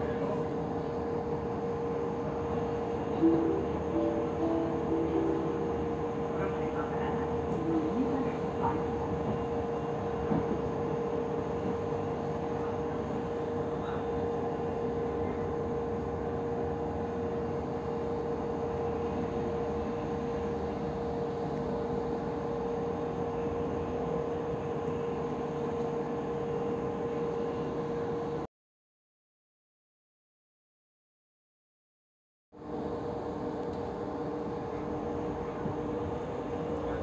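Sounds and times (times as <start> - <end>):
train running rumble: 0.0 - 17.8
constant high hum: 0.0 - 28.4, 32.6 - 37.0.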